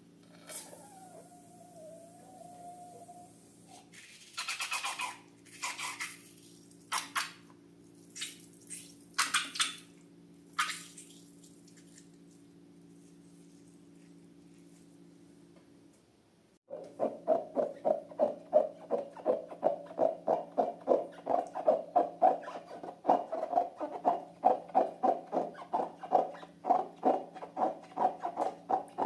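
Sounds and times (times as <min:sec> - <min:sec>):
steady low hum: 0:00.0 - 0:04.3
wet crackling slime squelches: 0:03.9 - 0:14.1.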